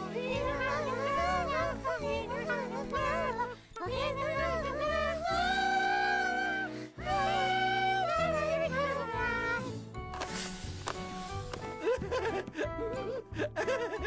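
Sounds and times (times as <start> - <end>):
high-pitched wordless singing voice: 0.0 - 9.9
cartoon music: 0.2 - 10.4.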